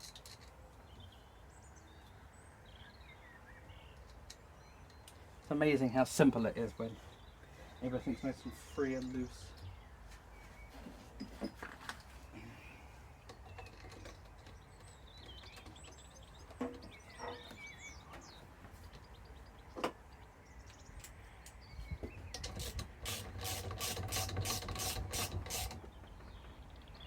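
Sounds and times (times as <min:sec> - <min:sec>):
clicks and knocks of parts: 0:13.3 - 0:17.0, 0:22.3 - 0:25.9
ratchet-like clicks: 0:22.4 - 0:25.8.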